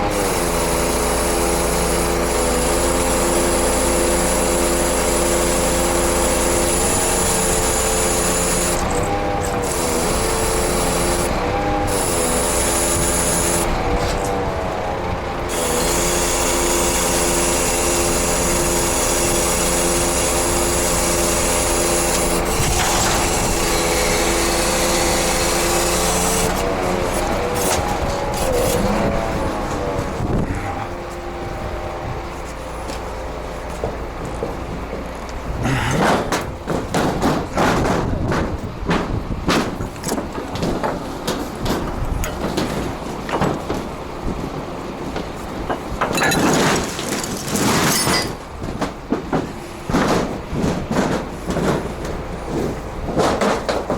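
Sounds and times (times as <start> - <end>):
truck engine running: 2.1 - 53.9
metal knocks and clanks: 33.8 - 53.9.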